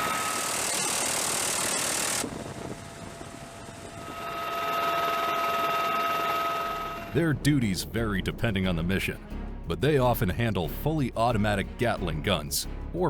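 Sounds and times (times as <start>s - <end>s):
helicopter turbine engine whine: 0.0s - 7.9s.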